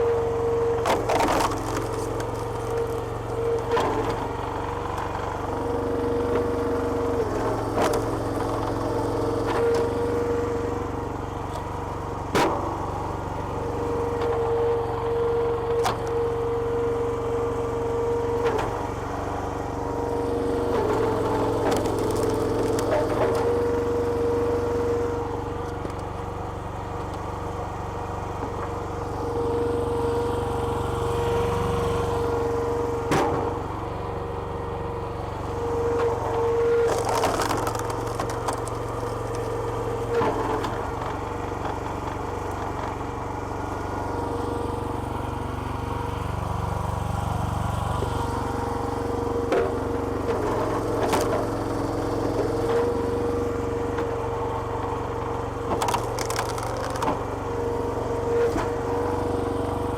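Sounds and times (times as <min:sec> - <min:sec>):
small petrol engine running: 0:00.0 - 0:59.9
wood cracking: 0:36.9 - 0:39.5, 0:55.7 - 0:57.2.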